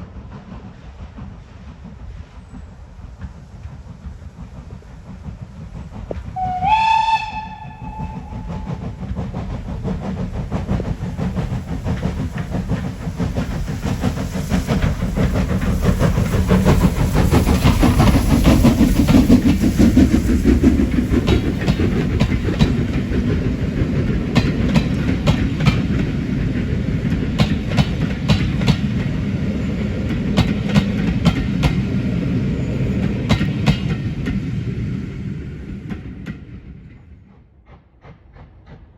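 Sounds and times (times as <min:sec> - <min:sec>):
train rumbling past: 0:00.0 - 0:38.9
steam locomotive whistle: 0:06.4 - 0:08.8
wheels clicking over rail joints: 0:07.6 - 0:29.2.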